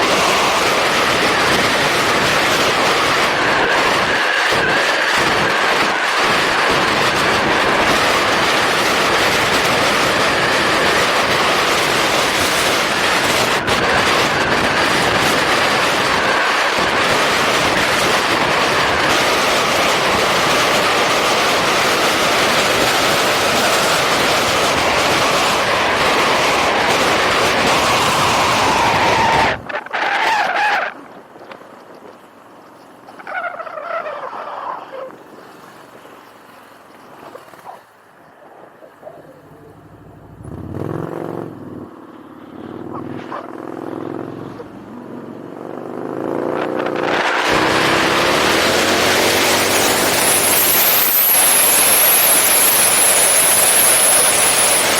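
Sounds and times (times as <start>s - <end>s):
wind and road noise rushing: 0.0s - 54.9s
faint motorcycle engine: 38.2s - 54.9s.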